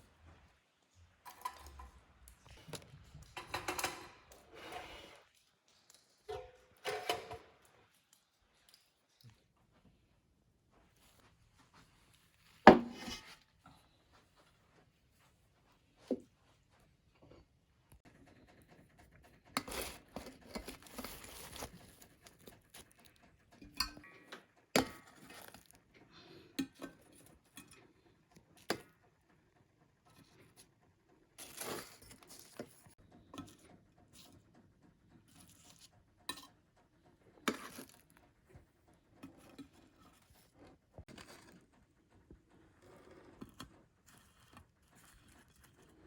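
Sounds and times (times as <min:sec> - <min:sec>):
kitchen utensils knocking and clinking: 0:01.2 - 0:02.1, 0:03.2 - 0:05.1, 0:06.2 - 0:07.8, 0:12.7 - 0:13.4, 0:23.6 - 0:25.7
rustling and scraping: 0:01.4 - 0:28.7, 0:29.9 - 0:46.0.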